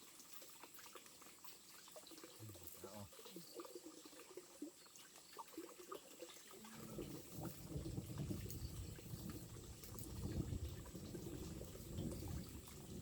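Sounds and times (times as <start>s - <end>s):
water running: 5.3s - 13.0s.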